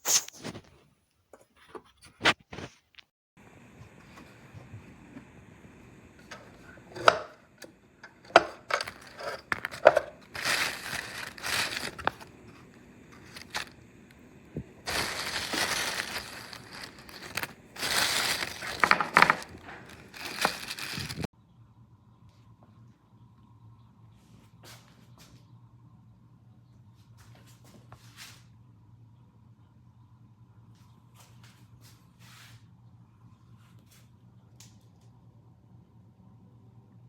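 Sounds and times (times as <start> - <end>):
faint steady hum: 3.4 - 37.0
crunching or scraping on griddle: 8.0 - 13.8, 14.8 - 21.3.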